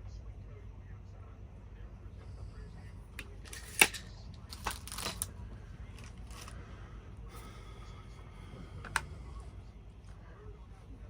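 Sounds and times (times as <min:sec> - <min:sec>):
low steady hum: 0:00.0 - 0:11.0
tools scraping and rustling: 0:03.2 - 0:05.4, 0:06.0 - 0:06.6.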